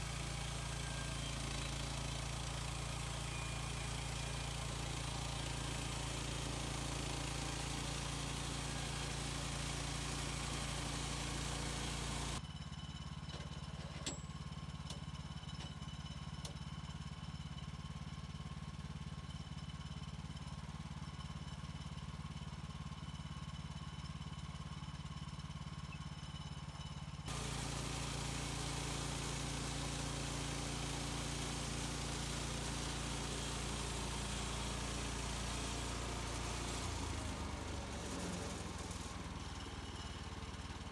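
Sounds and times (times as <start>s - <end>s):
engine running: 0.0s - 12.4s, 26.8s - 40.9s.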